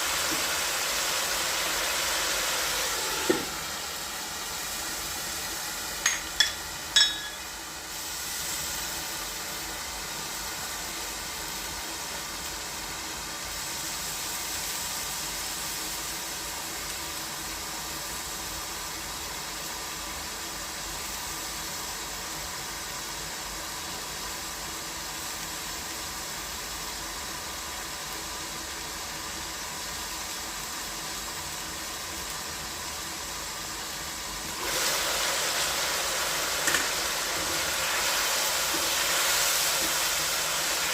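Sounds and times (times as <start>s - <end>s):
chicken sizzling in a pan: 0.0s - 40.9s
sharp clink: 6.1s - 7.5s.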